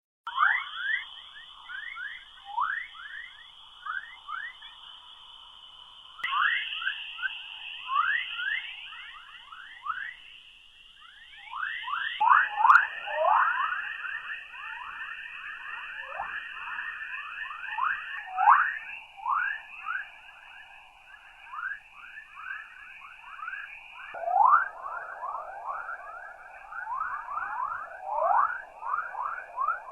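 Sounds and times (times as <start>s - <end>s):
rising whistle-like chirps: 0.3s - 29.9s
steady hiss: 0.9s - 11.1s.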